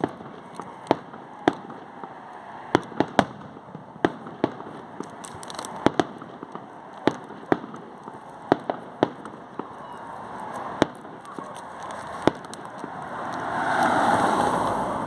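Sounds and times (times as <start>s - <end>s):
distant fireworks crackle and pops: 0.0s - 15.0s
fireworks bangs: 0.0s - 15.0s
high crackling: 4.9s - 15.0s.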